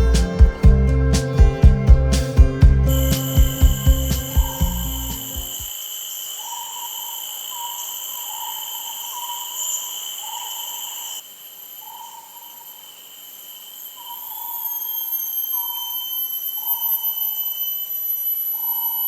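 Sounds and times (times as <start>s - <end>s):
animal hooting: 2.9s - 12.9s
insects ringing: 2.9s - 19.0s.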